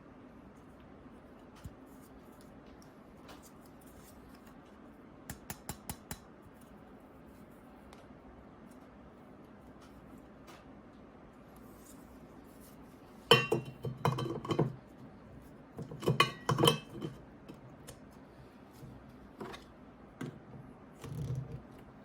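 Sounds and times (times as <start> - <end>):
glass pitcher clinking: 13.3 - 14.8, 15.9 - 17.2.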